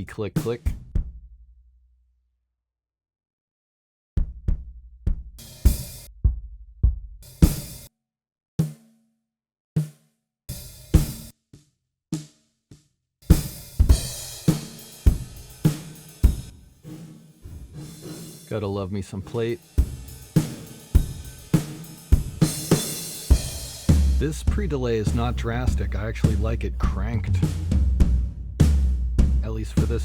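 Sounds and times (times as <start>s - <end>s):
acoustic drum kit pop groove: 0.0s - 1.2s, 4.2s - 7.9s, 10.5s - 11.3s, 13.2s - 30.0s.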